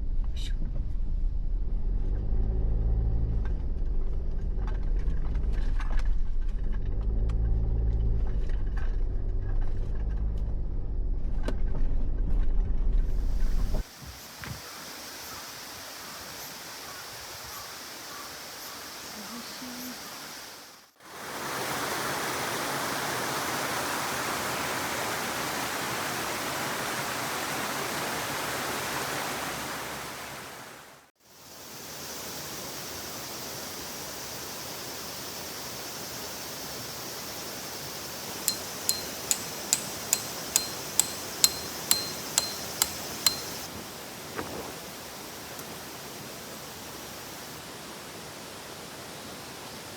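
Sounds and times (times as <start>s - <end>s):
stream running water: 13.6s - 49.9s
rapid sharp ticks: 38.5s - 43.7s.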